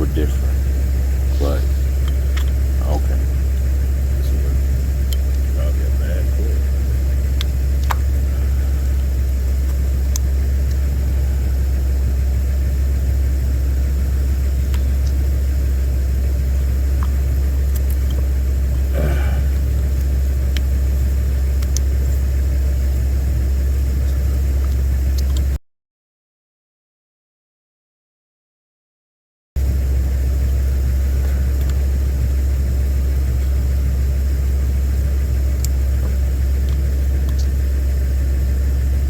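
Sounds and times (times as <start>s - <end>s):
low engine drone: 0.0s - 25.6s, 29.6s - 39.0s.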